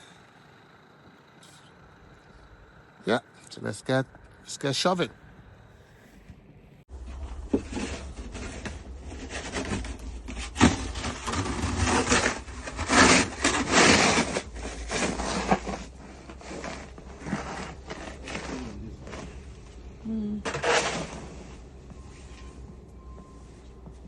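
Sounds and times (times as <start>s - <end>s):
scraping snow off a car: 6.9s - 23.9s.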